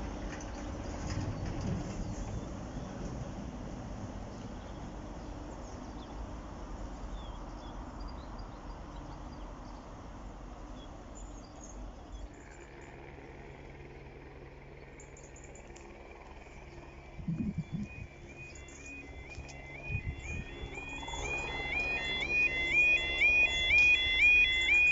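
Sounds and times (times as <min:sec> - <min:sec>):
steady hum: 0:09.5 - 0:24.9
low rumbling noise: 0:15.8 - 0:24.9
faint bird chirps: 0:16.4 - 0:22.2
high held tone: 0:16.8 - 0:24.9.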